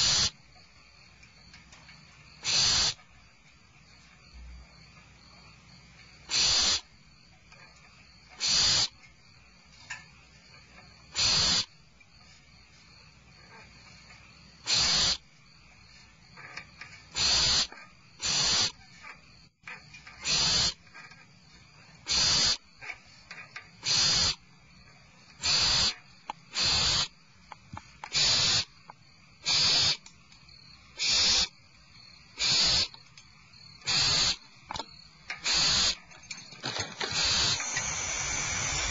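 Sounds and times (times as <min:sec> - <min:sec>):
owl nestlings hissing: 0:00.0 - 0:00.4, 0:02.4 - 0:03.0, 0:06.3 - 0:06.9, 0:08.3 - 0:09.0, 0:11.1 - 0:11.7, 0:14.6 - 0:15.2, 0:17.1 - 0:18.8, 0:20.2 - 0:20.8, 0:22.0 - 0:22.6, 0:23.8 - 0:24.4, 0:25.4 - 0:27.2, 0:28.0 - 0:28.8, 0:29.4 - 0:30.0, 0:30.9 - 0:31.6, 0:32.3 - 0:33.0, 0:33.8 - 0:34.5, 0:35.4 - 0:36.1, 0:36.7 - 0:38.9.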